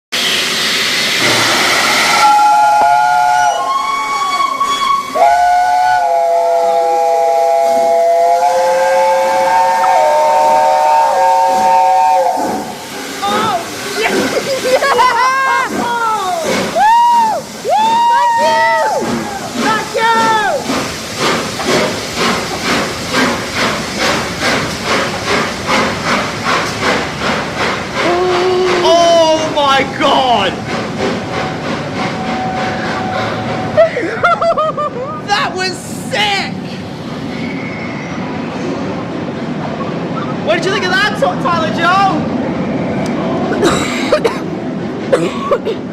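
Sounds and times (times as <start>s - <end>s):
steam hiss: 0.1s - 34.6s
steam locomotive whistle chord: 1.2s - 12.7s.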